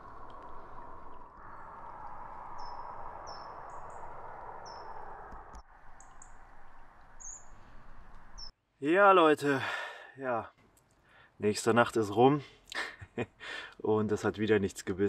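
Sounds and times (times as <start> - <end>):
songbird high chirps: 1.4 - 6.4, 7.1 - 8.6.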